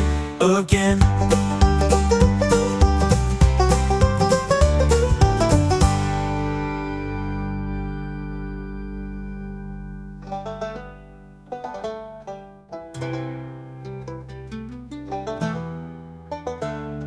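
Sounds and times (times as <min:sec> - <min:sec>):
low bass: 0:00.0 - 0:16.3
plucked-string melody: 0:00.0 - 0:17.0
held chord: 0:01.1 - 0:11.4.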